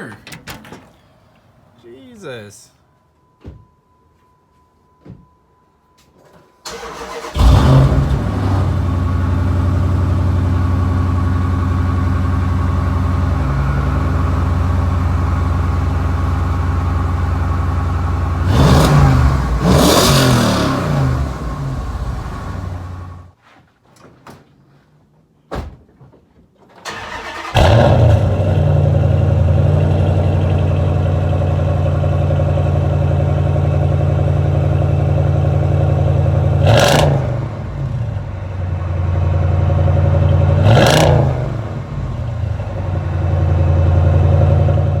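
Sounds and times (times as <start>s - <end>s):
car engine idling and revving: 6.7s - 23.3s, 27.0s - 45.0s.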